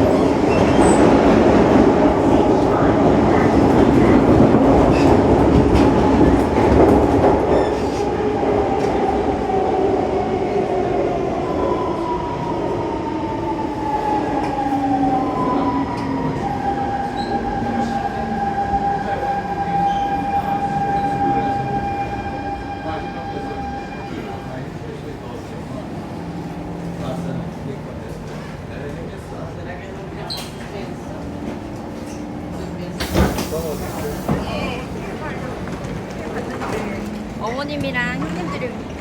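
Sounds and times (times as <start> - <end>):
train wheels rumbling: 0.0 - 39.0.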